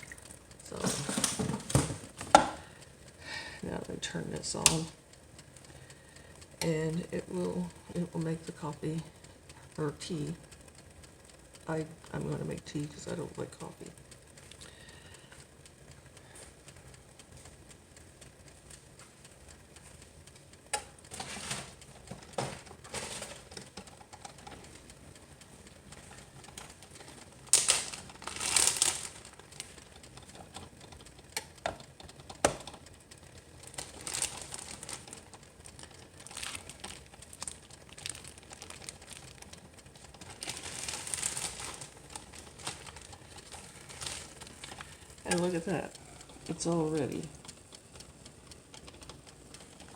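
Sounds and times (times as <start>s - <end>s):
sharp clicks and knocks: 0.0s - 2.7s, 12.9s - 49.9s
rustling and crinkling: 25.5s - 29.8s, 33.7s - 45.2s.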